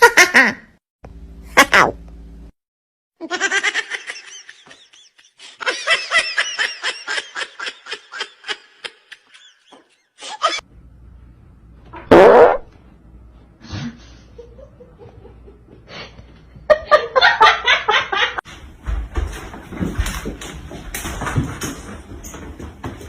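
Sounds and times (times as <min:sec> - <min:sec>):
high-pitched laughter: 0:03.2 - 0:10.6.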